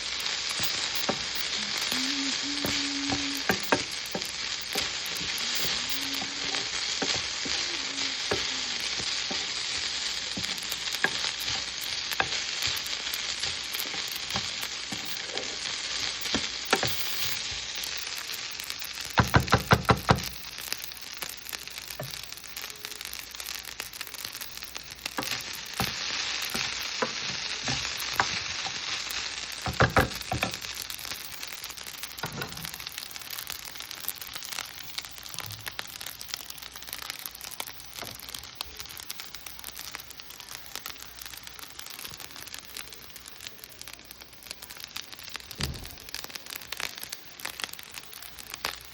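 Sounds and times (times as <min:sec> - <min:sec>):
rice sizzling in a pan: 0:00.0 - 0:48.9.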